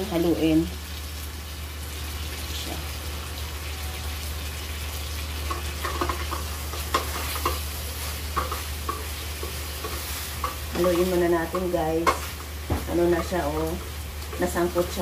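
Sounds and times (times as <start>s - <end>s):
chicken sizzling in a wok: 0.0s - 15.0s
spatula scraping and knocking pan: 5.4s - 15.0s.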